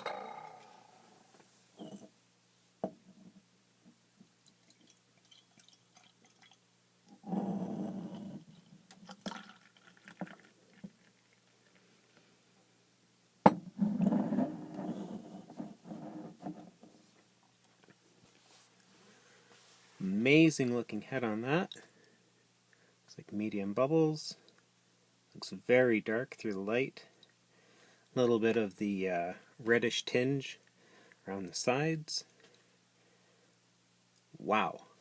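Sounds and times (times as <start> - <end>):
beer pouring into a glass: 4.4 - 11.5.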